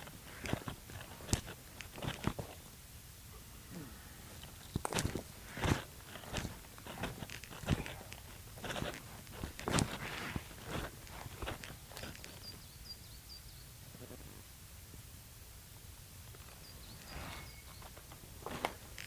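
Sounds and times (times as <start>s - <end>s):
footsteps on a trail: 4.4s - 12.6s.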